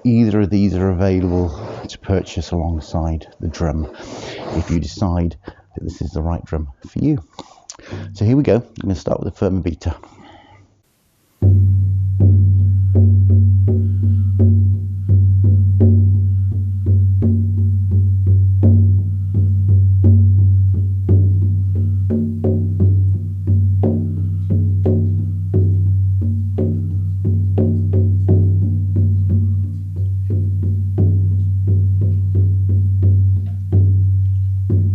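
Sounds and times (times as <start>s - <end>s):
frame drum beaten steadily: 11.4s - 34.9s.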